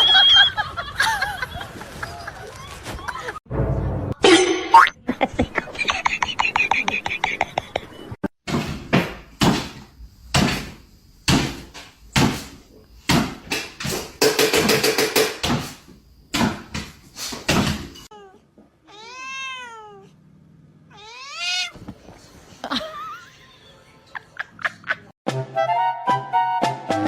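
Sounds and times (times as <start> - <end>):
sharp knocks and thumps: 8.4 - 18.1
cat meowing: 18.1 - 20.2, 20.9 - 21.8.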